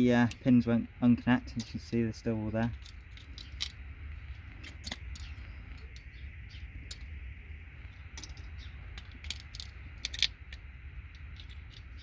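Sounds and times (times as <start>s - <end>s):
steady low hum: 0.0s - 12.0s
light clicks of small parts: 2.6s - 6.1s, 8.2s - 12.0s.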